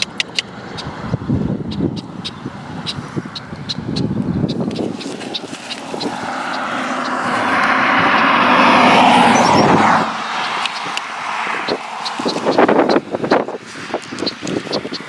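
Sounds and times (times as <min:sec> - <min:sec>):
car passing by: 0:04.6 - 0:15.0.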